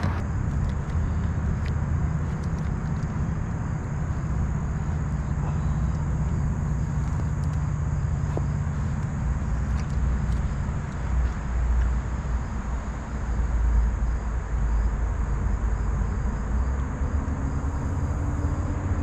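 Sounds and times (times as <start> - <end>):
faint ticks: 0.0 - 3.2
low outdoor rumble: 0.0 - 19.0.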